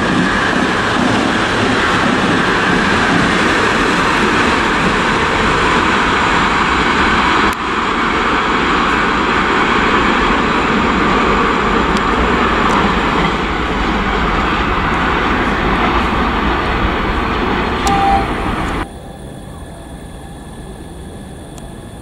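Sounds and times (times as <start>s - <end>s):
train rumbling through station: 0.0s - 22.0s
station ambience hum: 13.6s - 22.0s.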